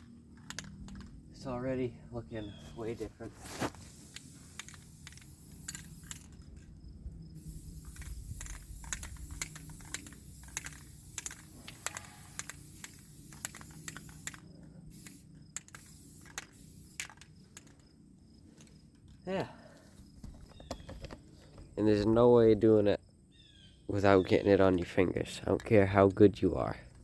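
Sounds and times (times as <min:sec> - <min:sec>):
spray paint can hissing: 0:03.4 - 0:06.6, 0:07.3 - 0:17.8.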